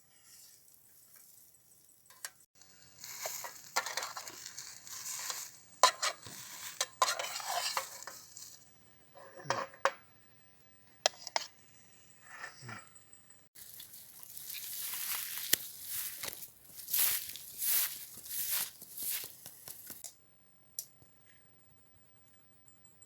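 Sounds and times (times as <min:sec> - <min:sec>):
sizzling hiss: 0:00.0 - 0:08.8
utensil stirring in metal pan: 0:03.1 - 0:08.5.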